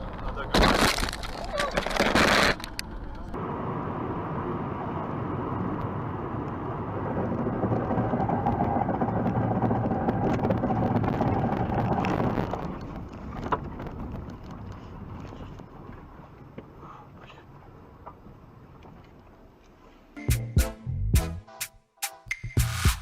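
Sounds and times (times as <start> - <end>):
car driving noise: 0.0 - 16.8.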